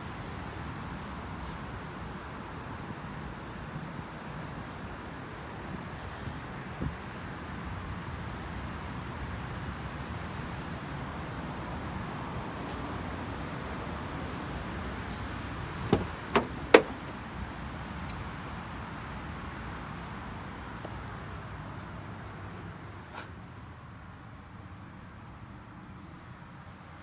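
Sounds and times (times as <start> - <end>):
steady background noise: 7.4 - 25.8
sharp clicks or knocks: 15.9 - 17.1.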